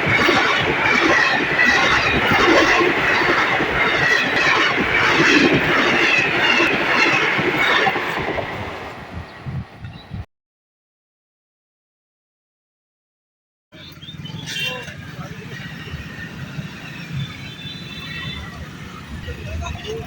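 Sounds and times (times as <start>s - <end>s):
train wheels clattering: 0.0s - 8.9s.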